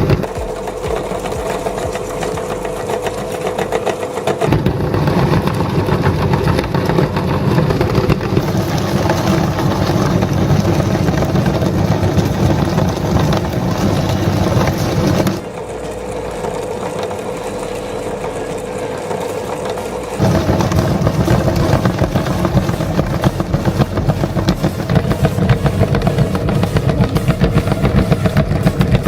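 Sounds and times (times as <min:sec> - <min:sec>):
electric meat grinder humming: 0:00.0 - 0:29.0.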